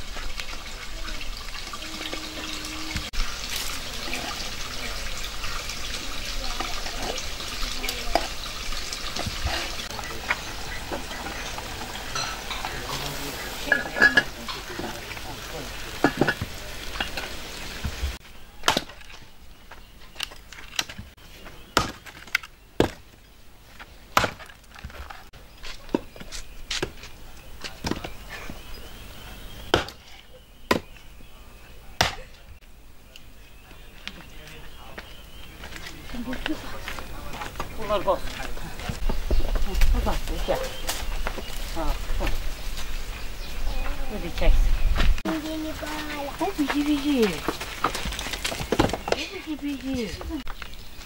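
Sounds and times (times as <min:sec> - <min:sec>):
kitchen utensils knocking and clinking: 0:09.2 - 0:13.0, 0:13.6 - 0:15.2, 0:16.0 - 0:17.3.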